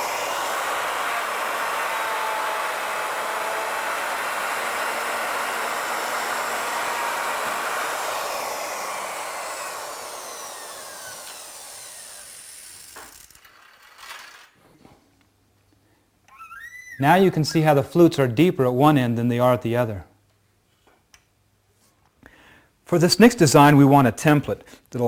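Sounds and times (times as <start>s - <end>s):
router motor whine: 0.0s - 14.4s.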